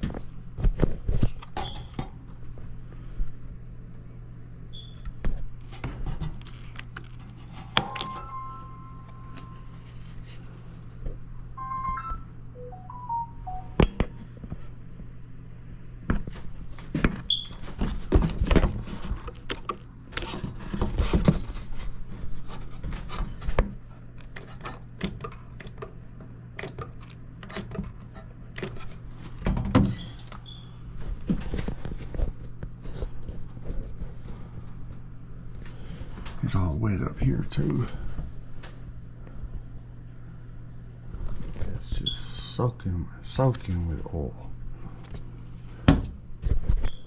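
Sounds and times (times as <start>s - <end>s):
steady low hum: 0.0s - 47.0s
descending electronic beeps: 11.6s - 13.8s.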